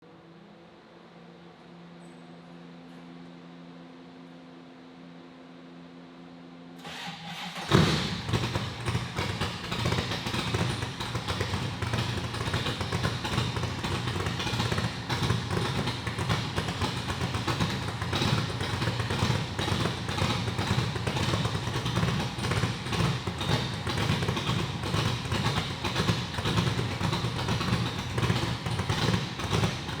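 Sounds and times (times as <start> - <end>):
engine backfire bang: 6.8 - 18.6
car engine cranking and starting: 6.8 - 30.0
car engine idling unevenly: 6.8 - 30.0.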